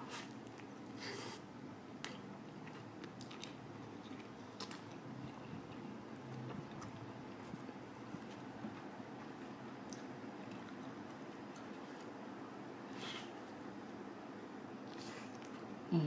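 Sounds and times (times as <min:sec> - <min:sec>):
faint low hum: 0:00.0 - 0:16.0
person chewing food: 0:02.0 - 0:12.2.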